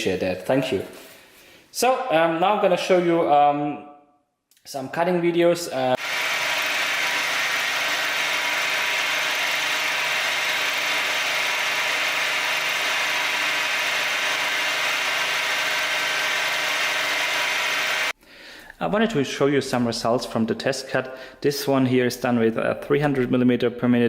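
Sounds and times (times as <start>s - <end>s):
milling machine humming: 6.0s - 18.1s.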